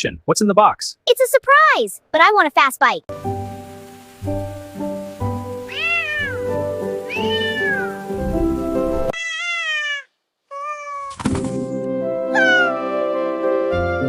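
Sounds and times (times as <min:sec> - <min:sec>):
light background music: 0:03.1 - 0:09.1, 0:11.3 - 0:14.0
cat meowing: 0:05.7 - 0:08.1, 0:09.1 - 0:11.1, 0:12.3 - 0:12.8.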